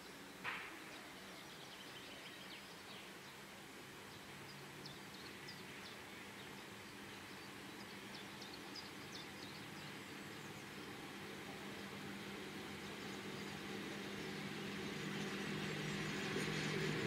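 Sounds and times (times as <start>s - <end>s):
birds chirping: 4.1s - 17.0s
electric locomotive hum: 9.2s - 17.0s.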